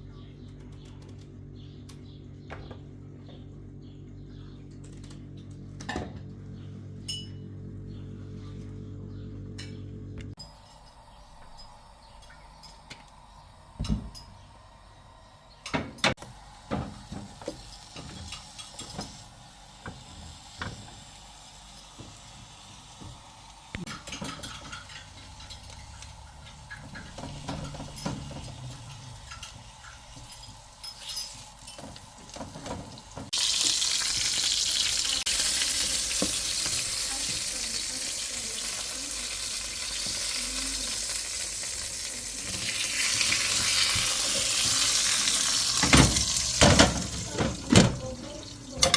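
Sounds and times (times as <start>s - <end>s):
food sizzling in hot oil: 16.6s - 48.8s
utensil clinking on cooking pot: 23.9s - 32.1s.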